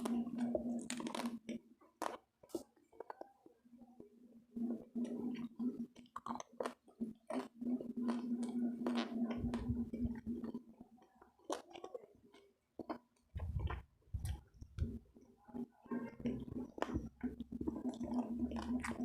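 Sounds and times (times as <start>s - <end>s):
chewing crunchy food: 0.0s - 3.4s, 4.7s - 15.0s, 15.9s - 19.0s
steady low hum: 9.4s - 10.4s
wet mouth clicks: 12.8s - 15.0s, 16.2s - 19.0s.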